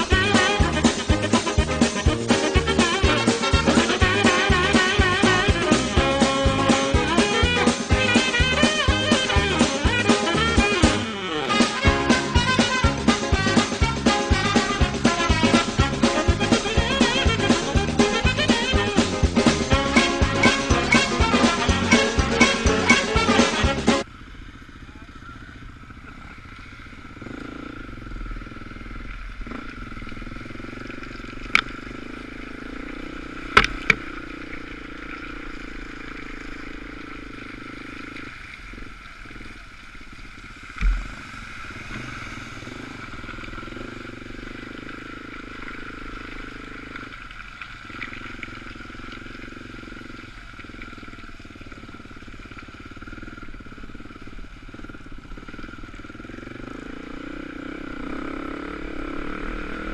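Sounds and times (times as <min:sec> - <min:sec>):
dirt bike engine running: 0:00.0 - 0:59.9
sharp knocks: 0:40.8 - 0:42.3
heavy thump: 0:40.8 - 0:43.3.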